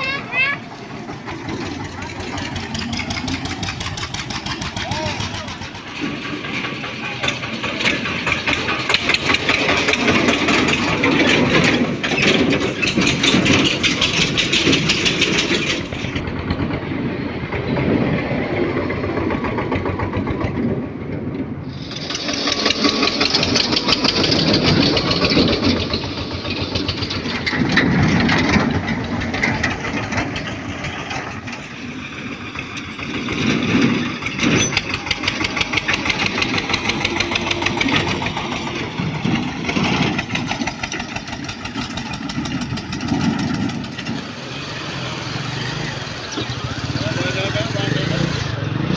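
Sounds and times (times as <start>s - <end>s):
tractor diesel engine chugging: 0.0s - 48.9s.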